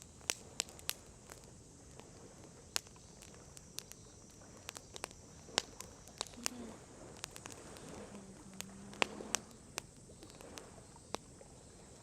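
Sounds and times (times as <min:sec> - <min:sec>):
campfire crackling and popping: 0:00.0 - 0:12.0
faint steady hiss: 0:00.0 - 0:12.0.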